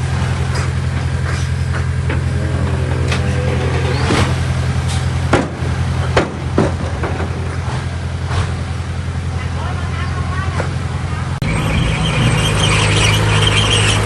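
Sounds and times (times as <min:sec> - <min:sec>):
diesel machine running: 0:00.0 - 0:14.0.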